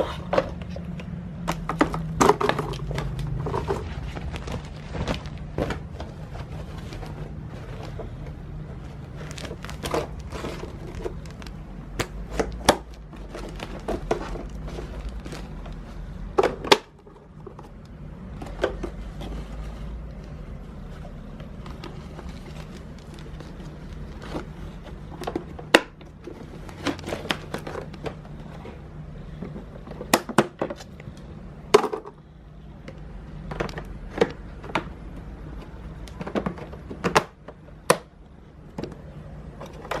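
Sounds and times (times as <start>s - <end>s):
plastic parts clicking: 0.0s - 20.4s, 21.4s - 28.7s
low steady hum: 0.0s - 40.0s.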